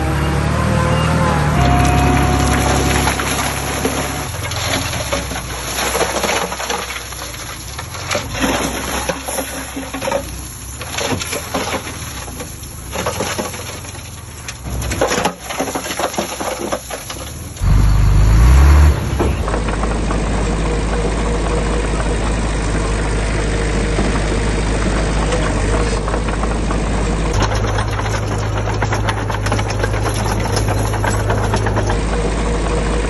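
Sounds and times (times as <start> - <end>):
diesel engine revving: 0.0 - 33.0
diesel engine running: 0.0 - 33.0
soil and stones crunching: 1.6 - 21.4, 23.8 - 32.6.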